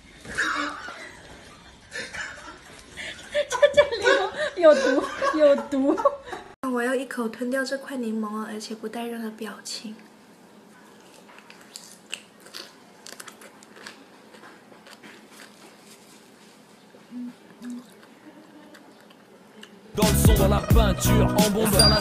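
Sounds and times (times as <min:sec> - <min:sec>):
person chewing lemon: 0:11.0 - 0:19.8
wet mouth clicks: 0:17.2 - 0:19.8.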